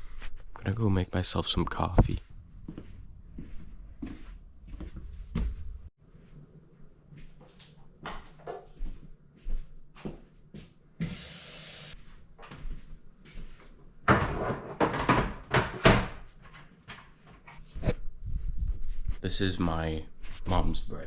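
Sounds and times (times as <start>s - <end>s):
cupboard doors and objects knocking: 14.1s - 16.2s.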